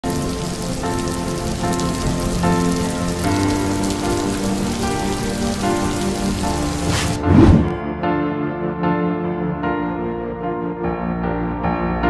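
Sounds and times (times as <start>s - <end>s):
steady rain falling: 0.0s - 7.7s
soft music: 0.0s - 12.0s.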